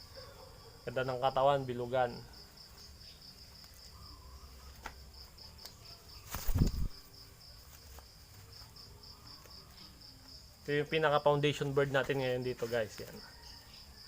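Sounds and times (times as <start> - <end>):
insects trilling: 0.0 - 14.0
loud rustling thump: 6.3 - 7.0.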